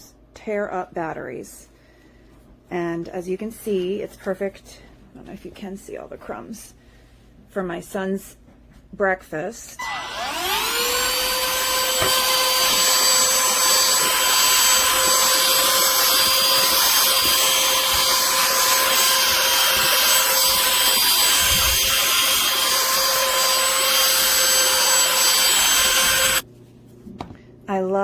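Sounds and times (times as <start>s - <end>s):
handheld vacuum running: 9.8s - 26.4s.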